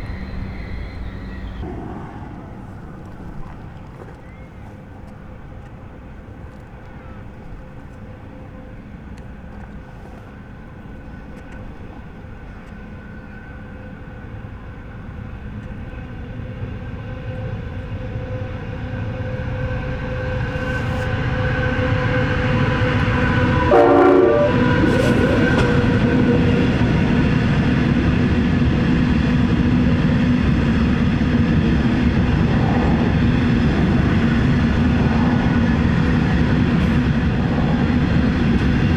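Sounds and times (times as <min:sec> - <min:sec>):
train horn blast: 0:00.0 - 0:01.6, 0:17.8 - 0:29.0
diesel locomotives running: 0:00.0 - 0:38.9.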